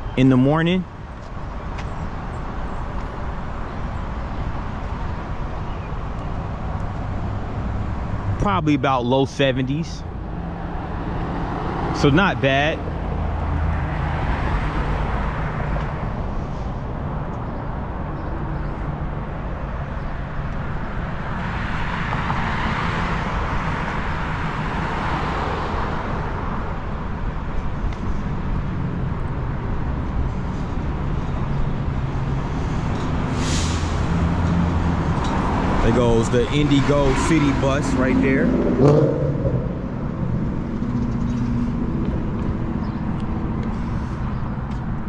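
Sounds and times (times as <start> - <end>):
vehicle engines running: 0.0 - 45.0
car passing: 9.6 - 17.2, 17.8 - 27.4, 28.2 - 45.0
bus air brake hiss: 33.3 - 34.2.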